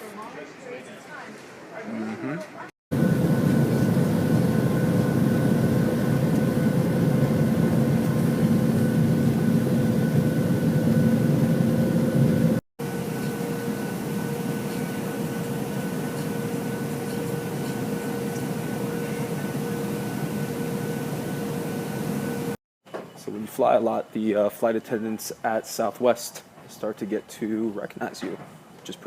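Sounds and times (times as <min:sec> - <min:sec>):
constant hum: 0:01.9 - 0:22.6
jet engine drone in cabin: 0:02.9 - 0:22.6.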